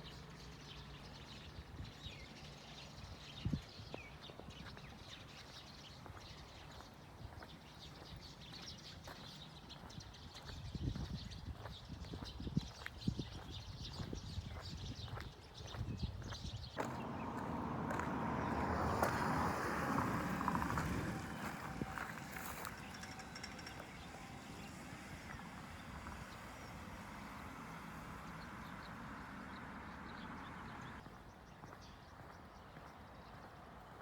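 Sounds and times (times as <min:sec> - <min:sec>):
roar of traffic: 0:16.8 - 0:31.0
vehicle passing: 0:16.8 - 0:31.1.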